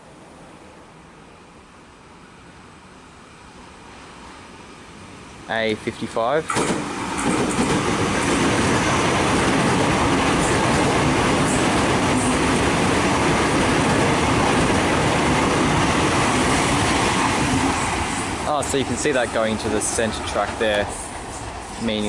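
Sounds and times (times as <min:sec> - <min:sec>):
train wheels rushing on rails: 0:05.9 - 0:22.0.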